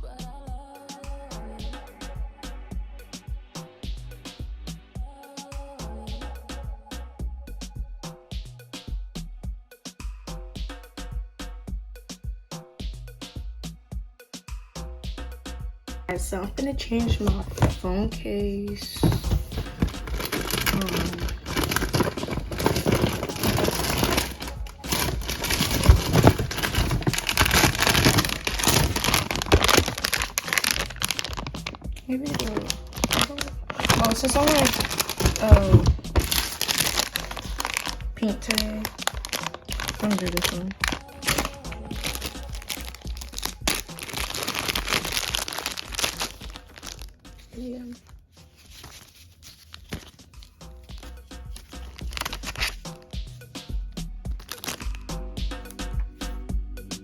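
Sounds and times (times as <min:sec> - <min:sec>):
plastic crinkling and rustling: 0:17.0 - 0:18.0, 0:18.8 - 0:47.2, 0:47.8 - 0:52.9, 0:54.4 - 0:55.0.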